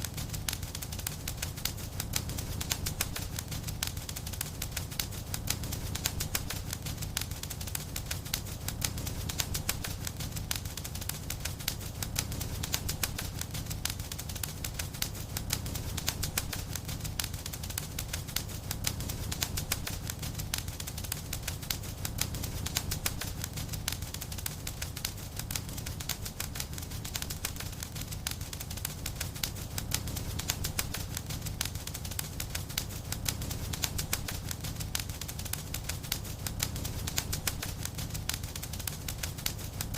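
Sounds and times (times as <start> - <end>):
low rumble of flame: 0.0 - 39.9
wood fire crackling and popping: 0.0 - 39.9.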